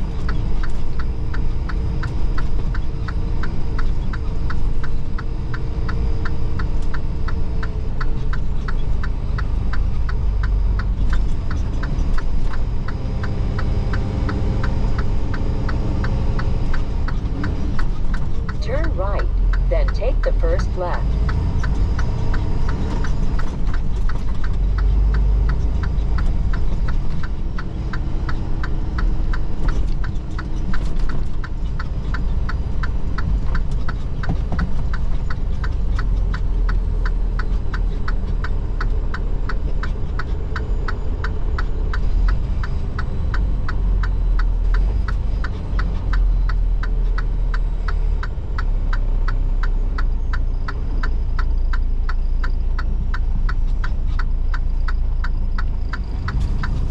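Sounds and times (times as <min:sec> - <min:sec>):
diesel engine rumble: 0:00.0 - 0:56.9
road noise: 0:00.0 - 0:56.9
turn signal clicking: 0:00.0 - 0:56.9.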